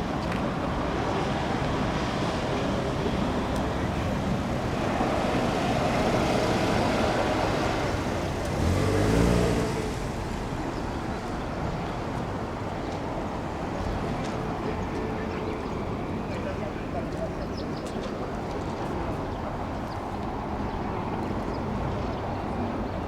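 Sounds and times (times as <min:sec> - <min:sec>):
road vehicle noise: 0:00.0 - 0:23.0
vehicle engine passing: 0:04.9 - 0:11.2.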